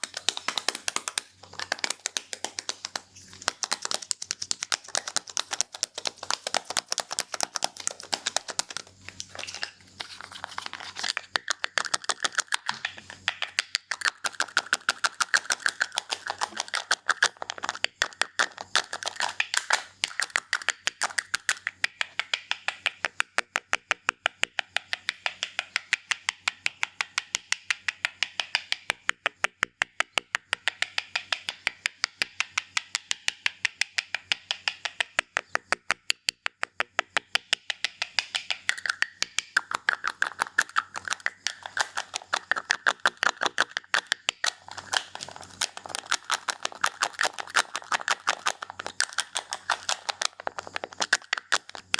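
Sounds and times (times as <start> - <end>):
scissors snipping fast: 0.0 - 21.8, 38.3 - 51.9.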